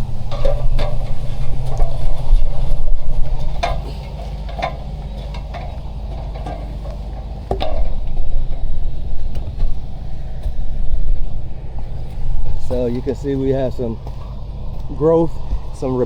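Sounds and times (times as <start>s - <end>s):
sharp clicks and knocks: 0.0s - 10.7s
engine idling: 0.0s - 16.0s.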